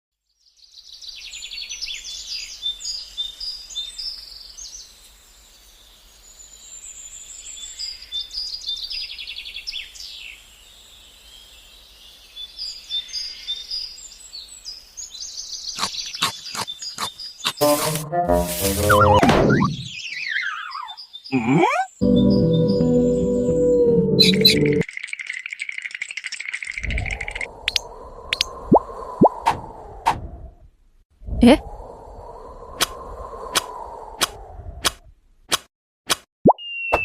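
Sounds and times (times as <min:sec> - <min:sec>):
songbirds chirping and trilling: 0:00.3 - 0:17.6, 0:19.0 - 0:24.9.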